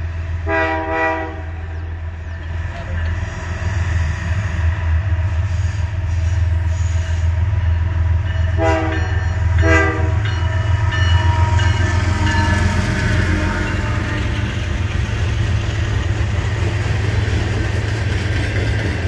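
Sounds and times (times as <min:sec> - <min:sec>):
diesel locomotive engine rumble: 0:00.0 - 0:19.0
train wheels: 0:00.0 - 0:19.0
train horn blasts: 0:00.4 - 0:01.9, 0:08.5 - 0:14.6.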